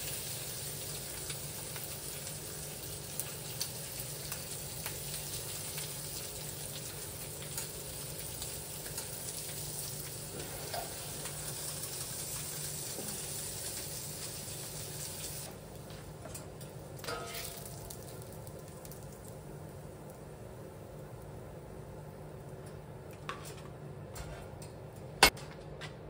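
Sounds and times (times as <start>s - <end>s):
food sizzling and crackling: 0.0s - 15.9s, 16.6s - 20.5s.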